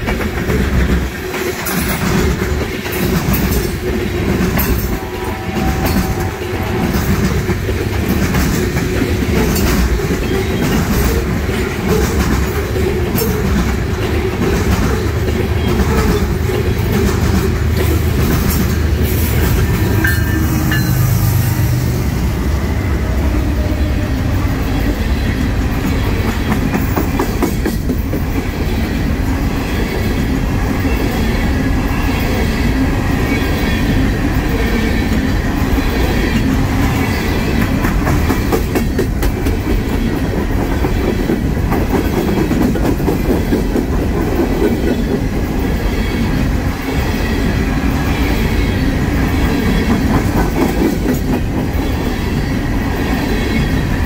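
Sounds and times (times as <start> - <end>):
train wheels clickety-clack: 0.0 - 21.8, 23.0 - 54.0.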